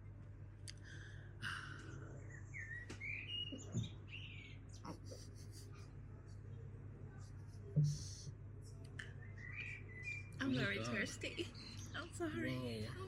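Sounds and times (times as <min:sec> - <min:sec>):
steady low hum: 0:00.0 - 0:13.0
birds chirping: 0:00.8 - 0:13.0
soft low knock: 0:07.7 - 0:08.3.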